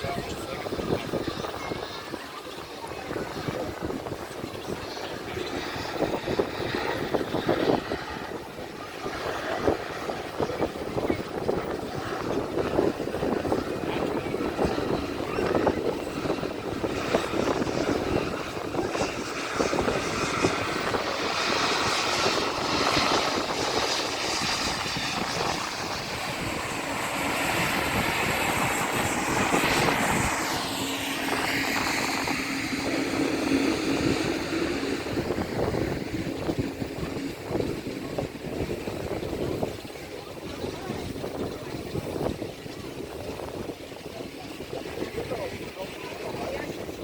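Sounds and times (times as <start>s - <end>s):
jet engine rumble: 0.0s - 47.0s
high whine: 12.3s - 39.8s.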